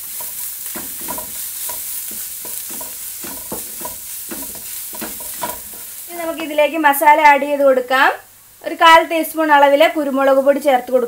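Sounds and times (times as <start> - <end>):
wooden spatula scraping a pan: 0.0 - 6.6
onions sizzling in a pan: 0.0 - 11.0.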